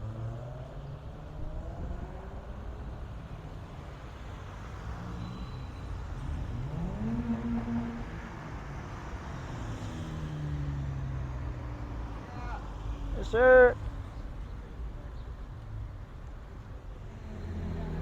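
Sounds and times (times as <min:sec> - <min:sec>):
car engine revving: 0:06.0 - 0:11.4, 0:17.0 - 0:18.0.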